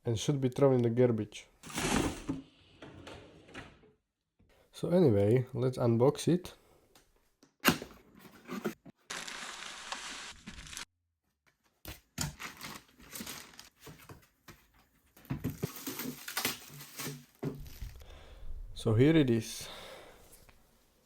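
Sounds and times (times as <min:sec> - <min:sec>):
packaging rustling and scraping: 0:12.3 - 0:14.1, 0:15.5 - 0:18.0.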